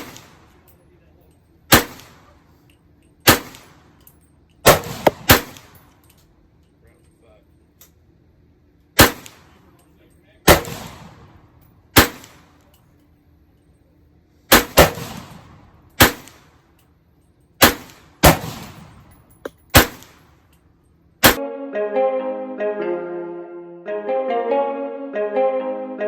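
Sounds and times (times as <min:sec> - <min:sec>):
echoing gunshots: 0:01.7 - 0:02.3, 0:03.3 - 0:03.8, 0:04.7 - 0:05.8, 0:09.0 - 0:09.5, 0:10.5 - 0:12.5, 0:14.5 - 0:16.5, 0:17.6 - 0:20.3.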